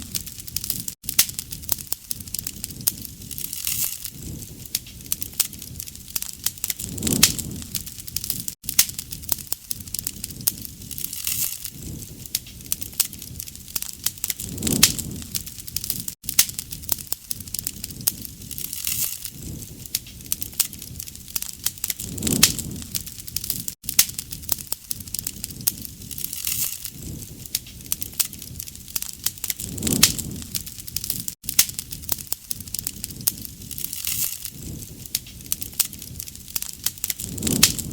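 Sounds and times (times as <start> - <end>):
low noise of flames: 0.0 - 37.9
wood fire crackling and popping: 0.0 - 37.9.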